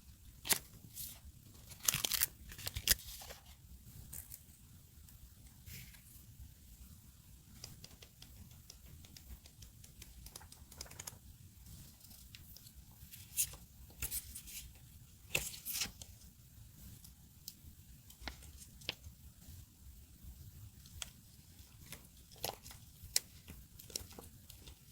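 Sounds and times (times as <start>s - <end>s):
paper tearing and crinkling: 0.5s - 3.4s.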